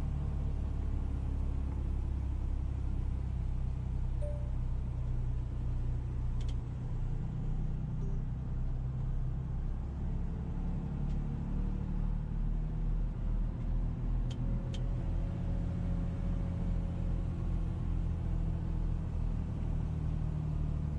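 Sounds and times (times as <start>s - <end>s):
vehicle engine rumbling: 0.0s - 20.9s
faint ticks: 6.4s - 6.6s.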